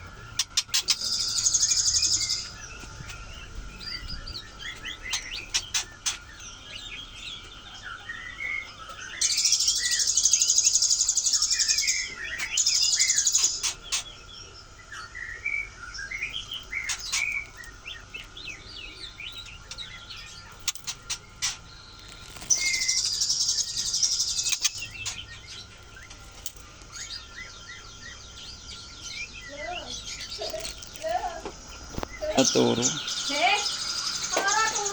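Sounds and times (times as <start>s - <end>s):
songbirds chirping: 0.0s - 34.9s.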